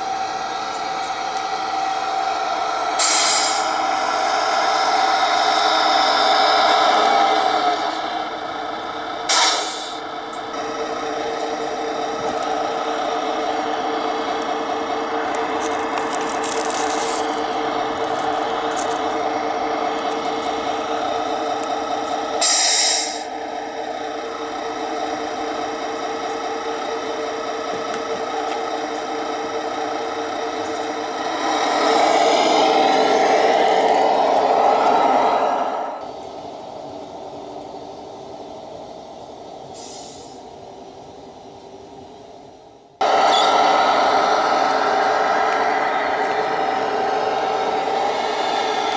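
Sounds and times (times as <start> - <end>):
model truck motor droning: 0.0 - 48.9
brief hiss: 39.8 - 40.4.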